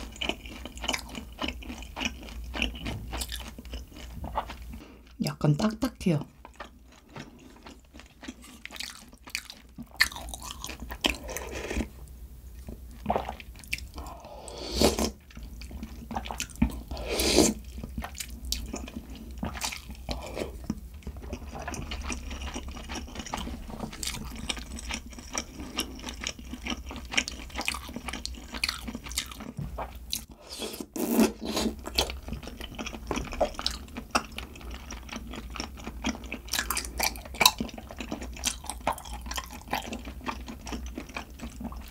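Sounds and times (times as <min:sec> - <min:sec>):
chewing and crunching food: 0:00.0 - 0:05.2, 0:06.0 - 0:12.0, 0:12.6 - 0:14.3, 0:14.9 - 0:41.9.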